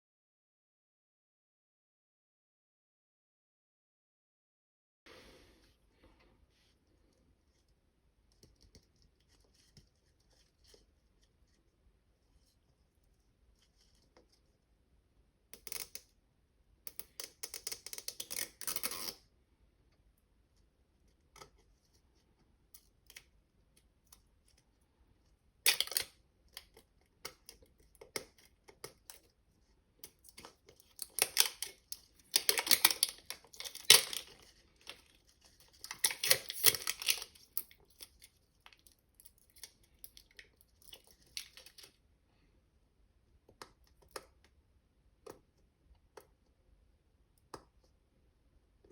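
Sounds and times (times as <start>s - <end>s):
toy packaging crinkling and tearing: 25.7s - 26.7s, 30.1s - 42.0s.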